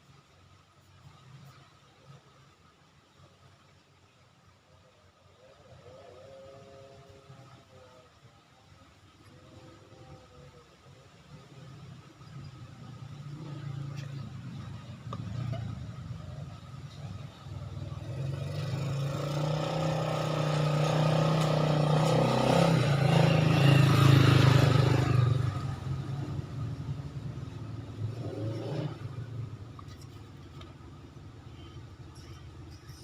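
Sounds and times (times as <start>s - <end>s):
motorcycle engine running: 12.0s - 33.0s.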